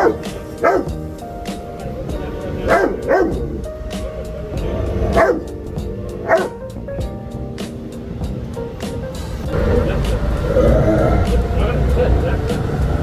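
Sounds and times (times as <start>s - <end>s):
dog barking deeply: 0.0s - 6.8s, 9.6s - 11.5s
background music: 0.0s - 13.0s.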